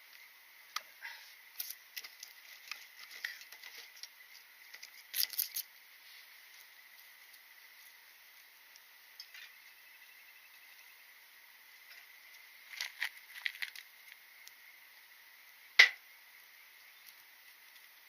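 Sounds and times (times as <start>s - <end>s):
faint steady hiss: 0.0s - 18.0s
wood fire crackling and popping: 0.1s - 5.9s, 11.7s - 18.0s.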